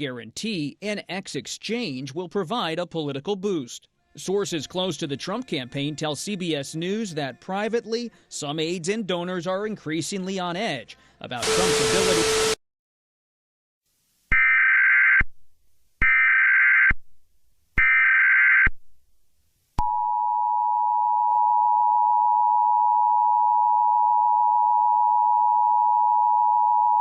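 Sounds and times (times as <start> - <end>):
harsh buzzing data bursts: 11.4 - 12.6.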